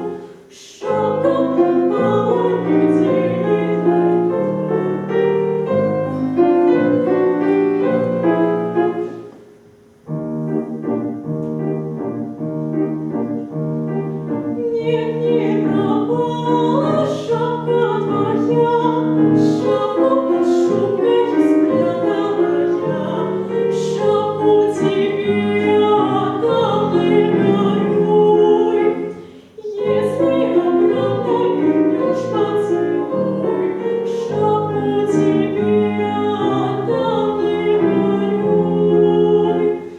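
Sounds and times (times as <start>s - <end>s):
operatic singing: 0.0s - 8.3s, 14.3s - 39.9s
piano accompaniment: 0.0s - 39.9s.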